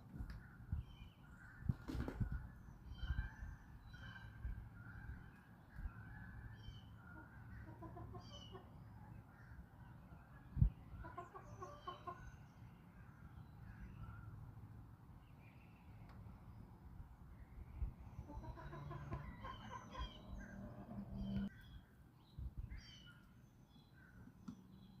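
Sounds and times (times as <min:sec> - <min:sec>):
small birds chirping: 0:00.1 - 0:25.0
chickens clucking: 0:07.2 - 0:08.8, 0:11.0 - 0:12.4, 0:18.2 - 0:21.5.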